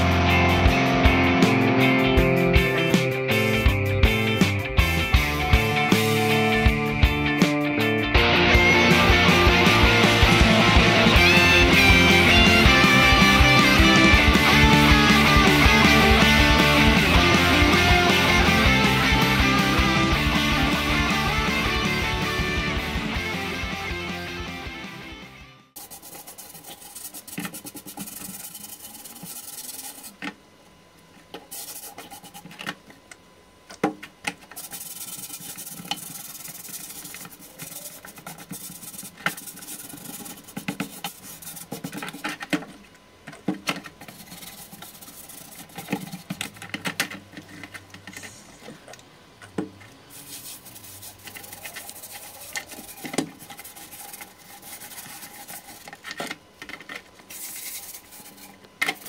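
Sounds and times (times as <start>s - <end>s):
scouring pad scrubbing metal: 25.8s - 30.2s, 31.5s - 32.6s, 34.4s - 42.6s, 43.8s - 47.9s, 50.1s - 56.2s, 56.8s - 59.0s.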